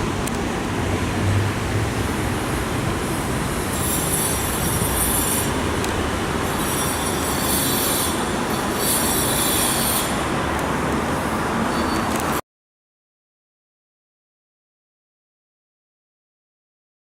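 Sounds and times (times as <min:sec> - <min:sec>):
train wheels rumbling on rail: 0:00.0 - 0:12.4
high-pitched wheel squeal: 0:03.6 - 0:05.6, 0:06.4 - 0:10.4, 0:11.6 - 0:12.4.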